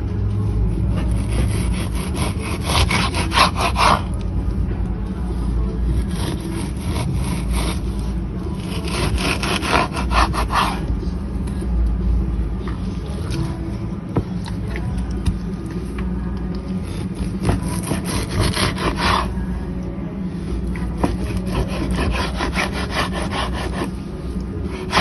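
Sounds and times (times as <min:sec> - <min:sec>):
steady low hum: 0:00.0 - 0:25.0
knife sawing through raw meat: 0:00.8 - 0:04.2, 0:05.8 - 0:10.9, 0:16.8 - 0:19.5, 0:20.6 - 0:25.0.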